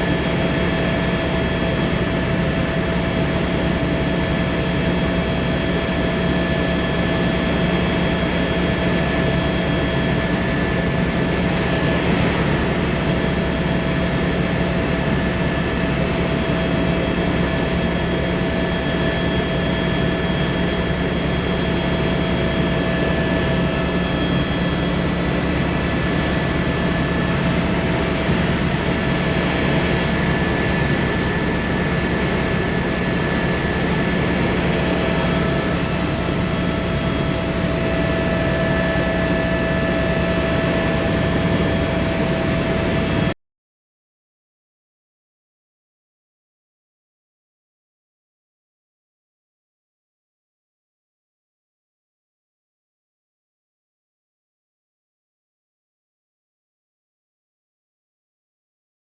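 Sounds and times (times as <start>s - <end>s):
constant whining tones: 0.0s - 43.3s
helicopter turbine and rotor drone: 0.0s - 43.4s.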